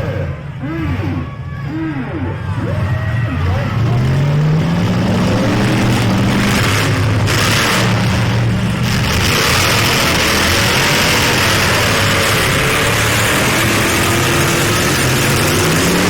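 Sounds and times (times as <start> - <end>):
truck engines revving: 0.0 - 16.0.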